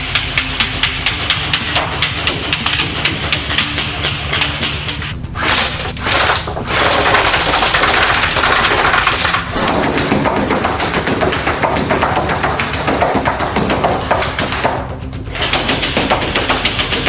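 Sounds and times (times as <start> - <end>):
background music: 0.0 - 17.0
airsoft rifle full-auto bursts: 5.4 - 9.5.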